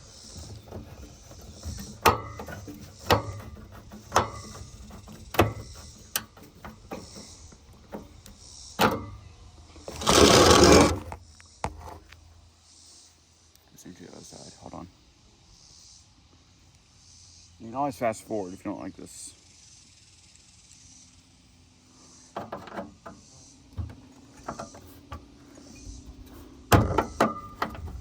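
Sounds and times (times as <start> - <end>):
knocks on metal case: 26.7 - 28.0.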